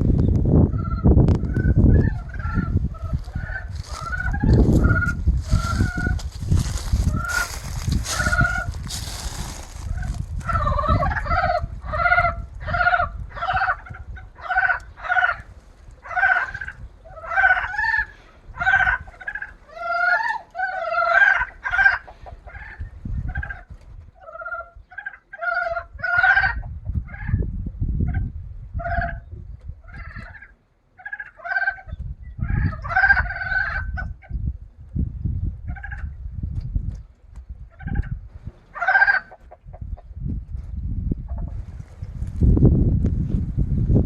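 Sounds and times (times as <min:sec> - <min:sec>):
low rumble: 0:00.0 - 0:12.6
frogs croaking in chorus: 0:00.7 - 0:08.8.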